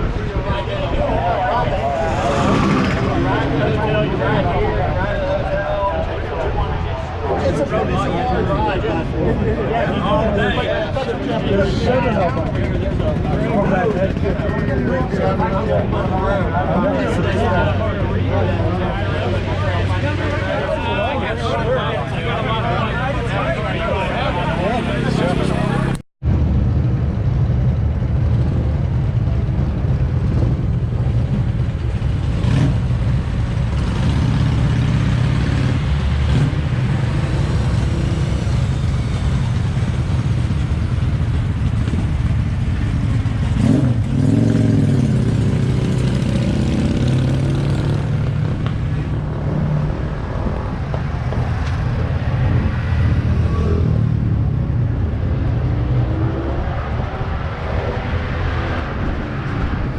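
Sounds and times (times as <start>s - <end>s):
road noise: 0.0s - 59.9s
engine revving: 1.8s - 4.8s, 32.2s - 50.9s, 55.0s - 59.9s.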